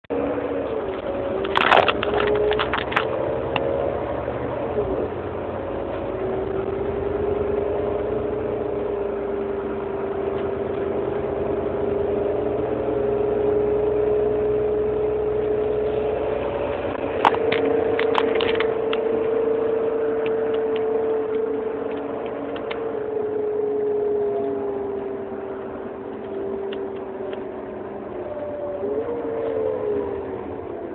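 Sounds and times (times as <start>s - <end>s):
bus engine whine: 0.1s - 30.9s
sharp clicks or rattles: 1.4s - 3.7s, 17.2s - 19.0s.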